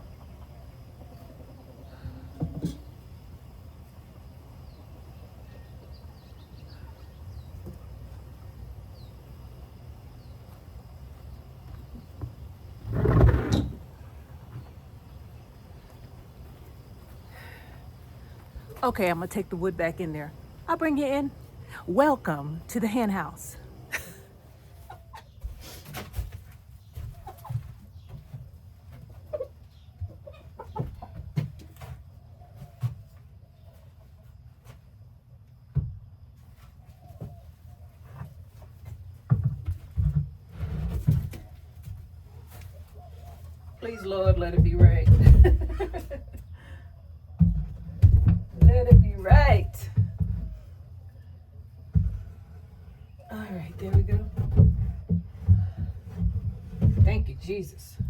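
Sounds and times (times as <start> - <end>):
chickens clucking: 0.0 - 3.2, 23.6 - 26.0, 26.7 - 34.2.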